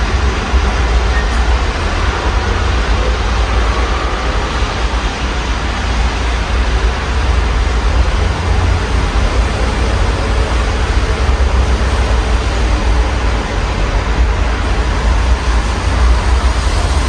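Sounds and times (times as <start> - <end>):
low rumble: 0.0 - 17.0
rain hissing: 7.7 - 17.0.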